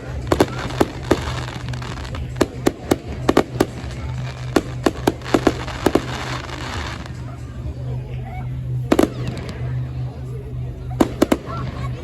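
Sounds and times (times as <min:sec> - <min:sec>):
crackling hiss: 0:00.0 - 0:07.3
fireworks bangs and pops: 0:00.0 - 0:07.3, 0:08.9 - 0:09.7, 0:11.0 - 0:12.0
steady low hum: 0:00.0 - 0:12.0.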